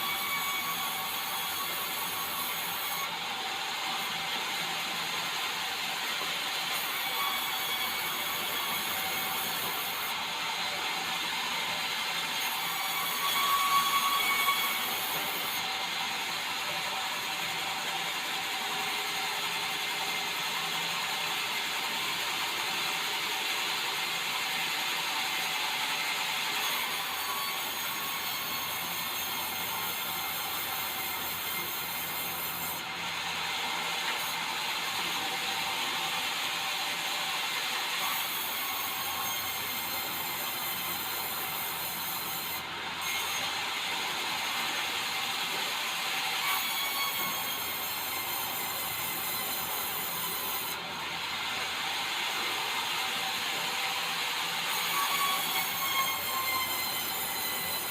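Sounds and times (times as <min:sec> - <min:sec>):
saw cutting timber: 0:00.0 - 0:57.9.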